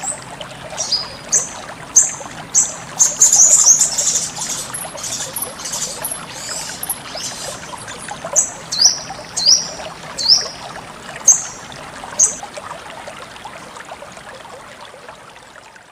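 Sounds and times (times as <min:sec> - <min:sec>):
water trickling: 0:00.0 - 0:15.9
bird calling: 0:00.8 - 0:10.7.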